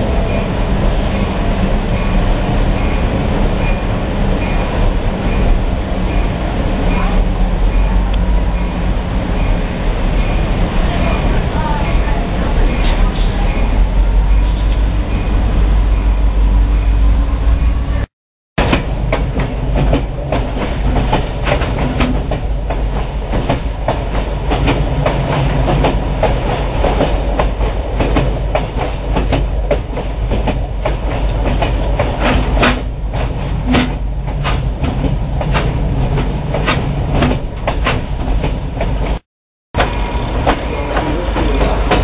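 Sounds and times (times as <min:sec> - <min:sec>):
train rumbling along track: 0:00.0 - 0:42.0
wheels clacking over rail joints: 0:18.6 - 0:39.2, 0:39.8 - 0:42.0.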